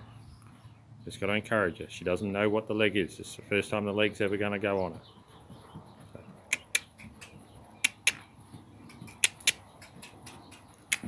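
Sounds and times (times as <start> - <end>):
person clicking tongue: 6.5 - 6.9, 7.8 - 8.2, 9.1 - 9.6.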